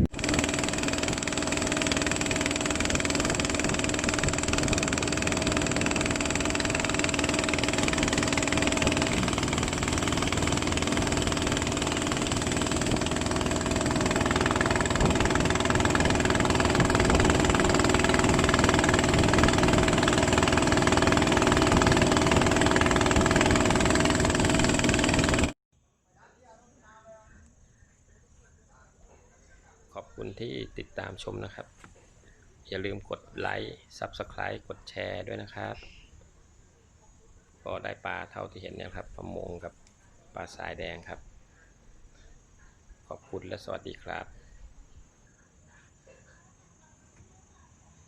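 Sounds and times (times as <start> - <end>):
boat engine running: 0.0 - 25.6.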